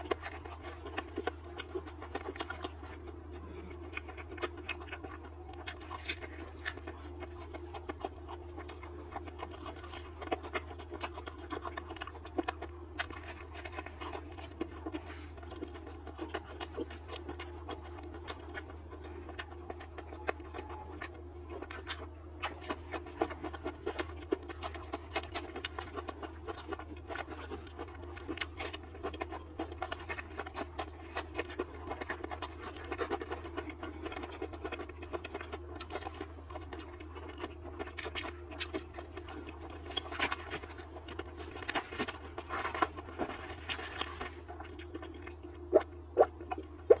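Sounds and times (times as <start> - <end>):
low hum: 0.0 - 47.0
person chewing food: 0.0 - 47.0.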